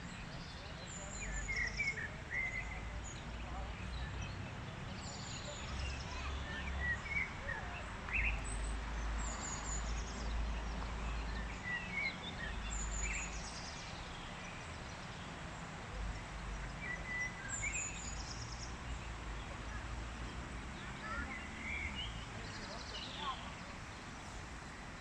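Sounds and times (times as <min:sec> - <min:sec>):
birds singing and chirping: 0:00.0 - 0:15.4, 0:16.5 - 0:19.5
outdoor background noise: 0:00.0 - 0:25.0.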